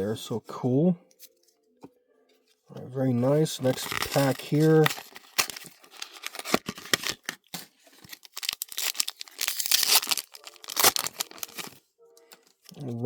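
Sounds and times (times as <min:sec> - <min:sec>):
foil wrapper tearing and crinkling: 0:03.6 - 0:11.8.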